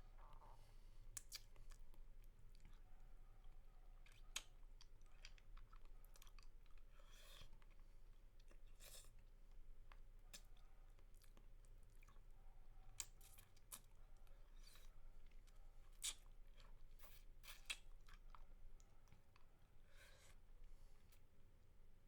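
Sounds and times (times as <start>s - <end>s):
wet mouth sounds eating lollipop: 4.0s - 7.8s, 14.5s - 18.4s.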